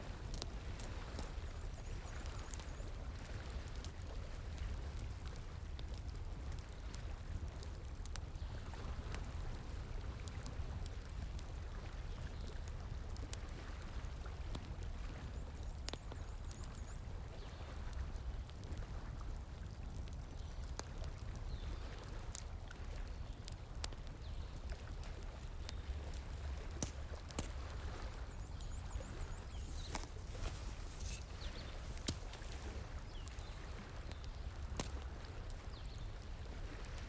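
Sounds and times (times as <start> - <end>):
wood fire crackling: 23.8 - 36.4
stream water flowing: 27.4 - 34.0.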